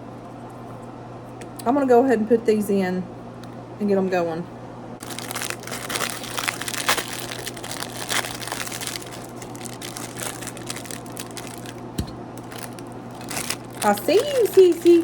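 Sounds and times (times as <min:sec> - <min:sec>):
wrapping crinkling: 0:05.0 - 0:15.0.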